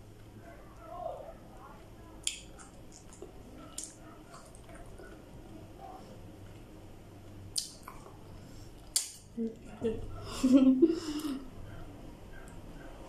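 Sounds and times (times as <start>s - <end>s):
wet chewing: 2.2s - 5.3s, 7.5s - 9.3s
sharp mouth smacks: 7.5s - 8.1s, 8.9s - 9.3s.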